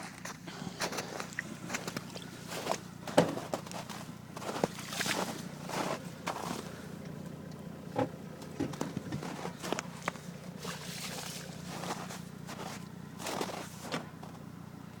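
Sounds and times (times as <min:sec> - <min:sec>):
footsteps: 0:00.0 - 0:06.7, 0:08.7 - 0:14.4
steady low hum: 0:00.0 - 0:15.0
short knocks and crunches: 0:01.7 - 0:06.6, 0:07.9 - 0:14.4.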